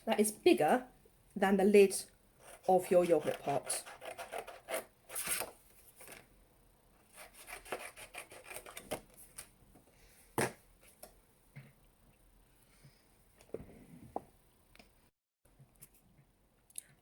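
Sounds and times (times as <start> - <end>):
scissors cutting card: 2.5 - 5.5, 7.2 - 9.0.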